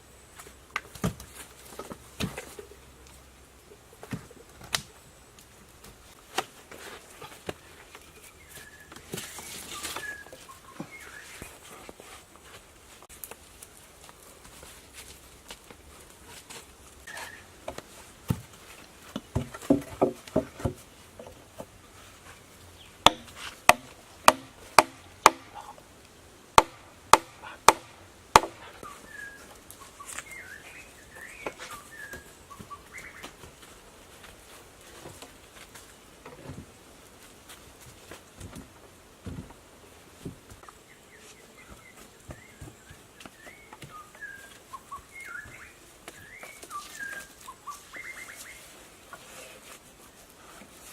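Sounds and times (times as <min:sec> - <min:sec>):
birds chirping: 0:07.6 - 0:11.7, 0:28.6 - 0:33.3, 0:40.6 - 0:48.8
chopping blows on wood: 0:23.0 - 0:25.6, 0:26.6 - 0:28.6.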